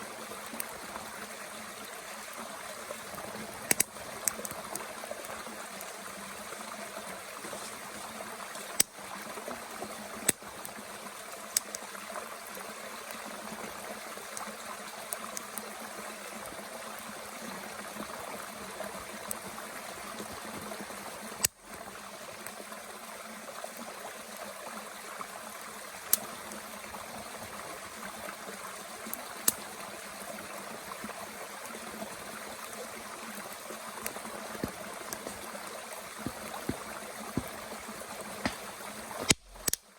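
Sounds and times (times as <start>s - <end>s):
stream flowing: 0.0s - 39.9s
wood popping in a stove: 3.6s - 4.8s, 34.0s - 39.9s.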